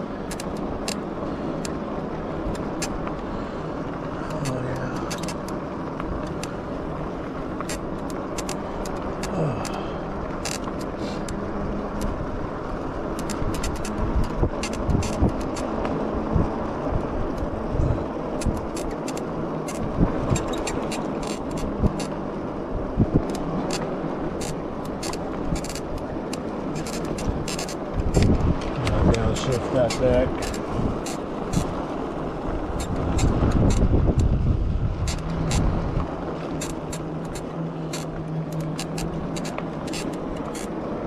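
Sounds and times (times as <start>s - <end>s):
bike clicks and rattles: 0.0s - 41.0s
wind rushing: 32.4s - 36.6s.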